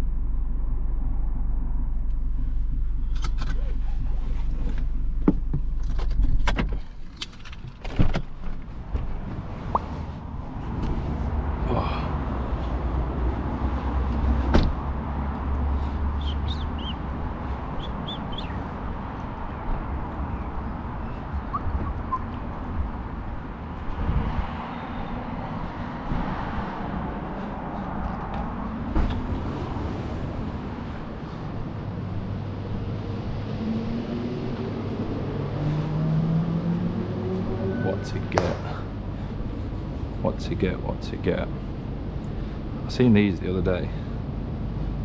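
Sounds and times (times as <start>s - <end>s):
car engine idling: 0.0s - 7.1s
traffic hum: 0.0s - 45.0s
car door opening and shutting: 4.6s - 10.0s, 14.4s - 14.8s
birds chirping: 15.8s - 22.6s.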